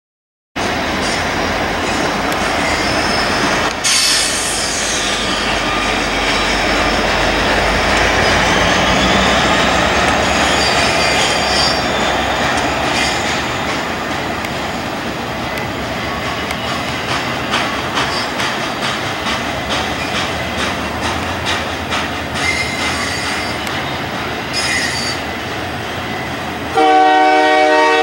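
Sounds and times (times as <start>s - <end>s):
diesel locomotives rumbling: 0.6s - 28.0s
rail cars rolling on rails: 0.6s - 28.0s
wheel squeal: 1.9s - 7.0s, 8.1s - 13.4s, 22.4s - 23.9s, 24.5s - 25.2s.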